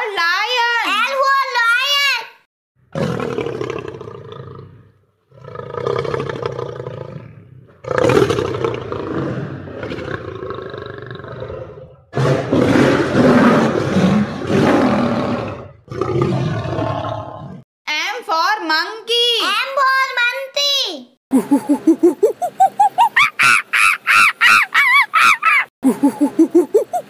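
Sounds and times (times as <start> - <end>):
lion roaring: 2.9 - 17.6.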